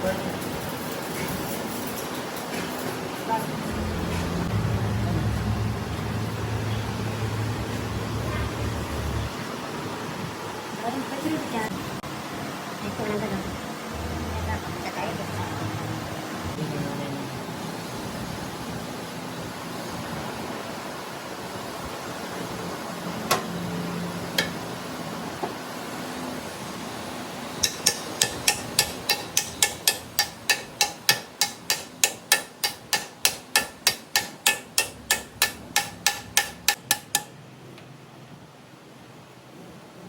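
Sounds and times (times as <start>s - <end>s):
hammer striking metal: 27.6s - 37.4s.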